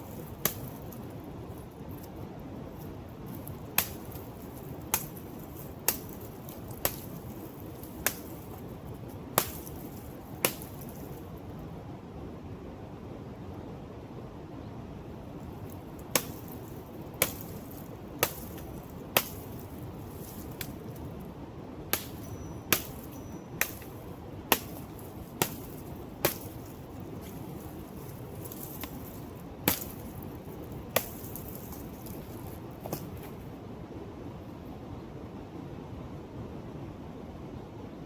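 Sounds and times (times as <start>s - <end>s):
blade chopping palm bunch: 0.0s - 2.2s, 2.8s - 11.3s, 15.4s - 21.2s, 21.9s - 33.4s.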